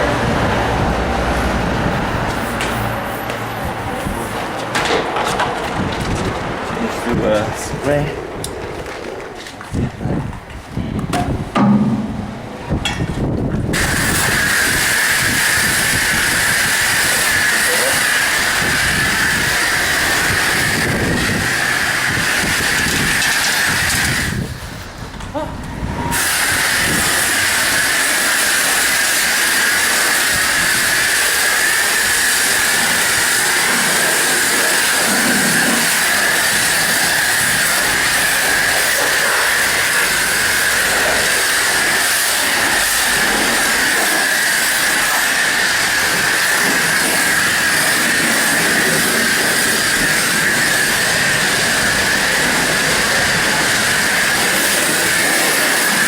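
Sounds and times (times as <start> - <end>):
pressure washer spraying water: 13.7 - 24.9, 25.9 - 56.0.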